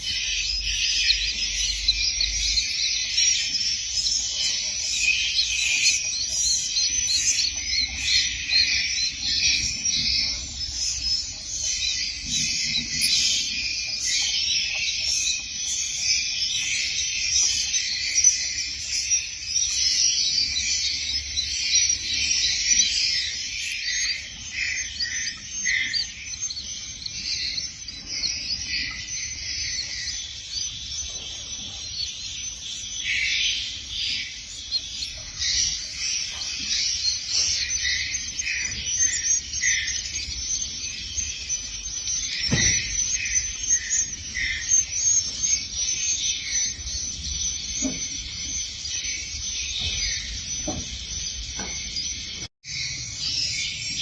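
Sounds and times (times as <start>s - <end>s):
birds twittering chorus: 0.0s - 54.0s.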